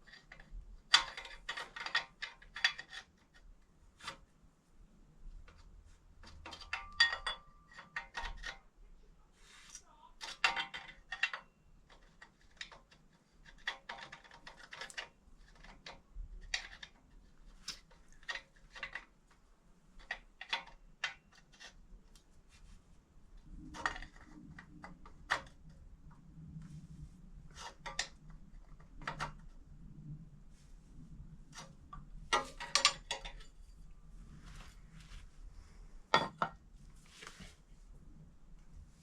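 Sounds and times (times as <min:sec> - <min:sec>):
faint low hum: 0:03.4 - 0:39.0.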